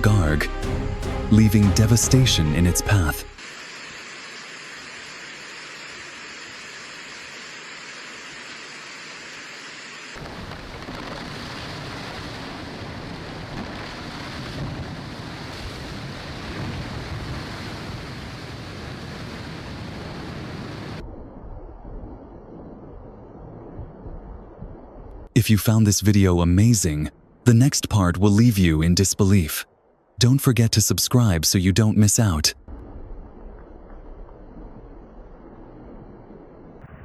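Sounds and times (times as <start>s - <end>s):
rain hiss: 2.8s - 21.0s.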